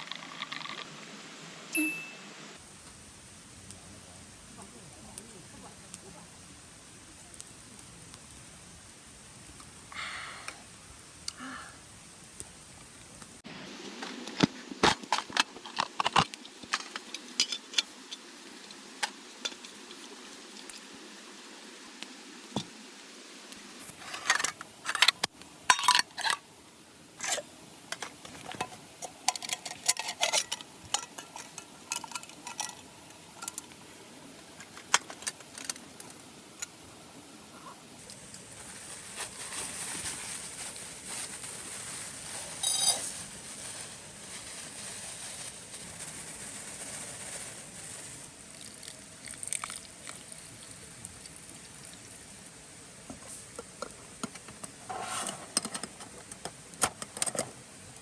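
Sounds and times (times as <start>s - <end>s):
soft steady hiss: 0.0s - 58.0s
metal cookware clinking and scraping: 25.7s - 26.4s, 28.4s - 32.8s, 42.6s - 43.2s.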